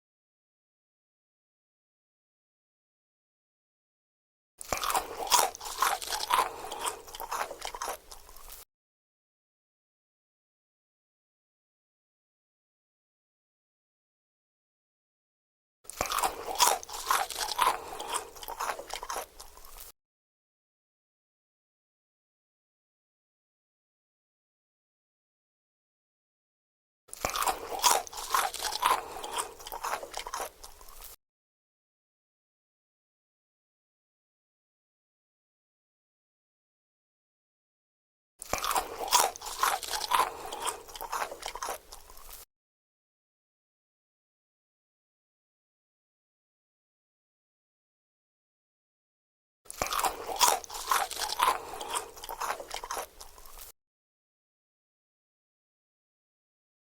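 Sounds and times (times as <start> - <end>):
crunchy food being chewed: 4.6 - 8.7, 15.9 - 20.0, 27.1 - 31.2, 38.4 - 42.5, 49.7 - 53.8.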